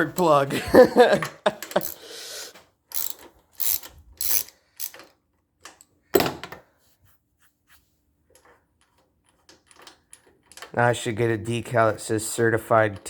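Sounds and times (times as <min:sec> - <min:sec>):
wrench ratcheting and scraping: 0:01.5 - 0:05.9.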